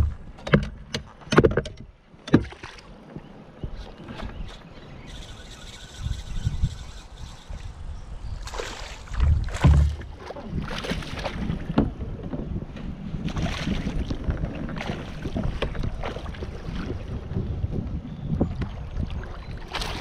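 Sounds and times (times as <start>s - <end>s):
water splashing against kayak: 0.0s - 5.9s, 8.3s - 20.0s
wind buffeting microphone: 3.2s - 20.0s
low thumps: 9.2s - 10.2s.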